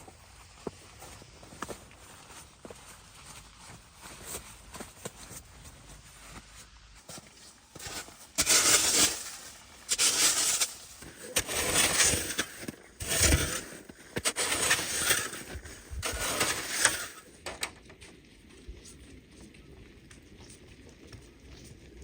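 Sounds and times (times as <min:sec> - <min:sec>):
snow crunching: 0:00.0 - 0:17.4.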